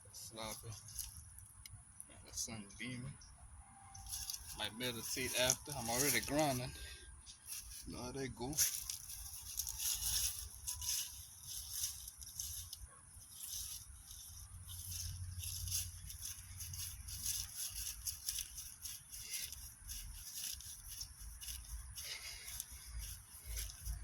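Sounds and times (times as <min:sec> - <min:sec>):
rustling and crackling: 0:00.2 - 0:02.5, 0:03.9 - 0:24.0.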